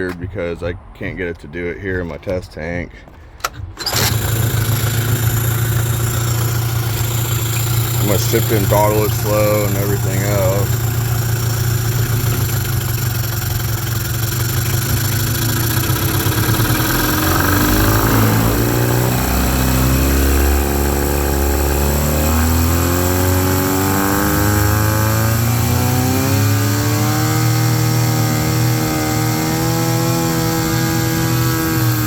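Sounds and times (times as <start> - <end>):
outboard engine running: 3.8 - 32.0.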